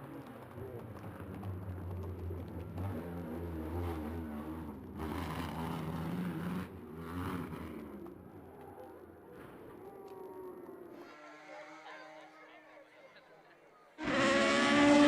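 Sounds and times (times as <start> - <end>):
race car engine revving: 1.4 - 8.6, 14.0 - 15.0.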